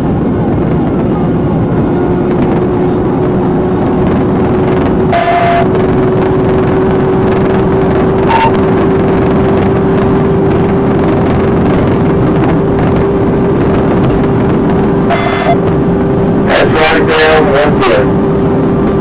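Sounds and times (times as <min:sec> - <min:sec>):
car engine and road noise: 0:00.0 - 0:19.0
short electronic beep: 0:05.1 - 0:05.7, 0:08.3 - 0:08.6, 0:15.1 - 0:15.6.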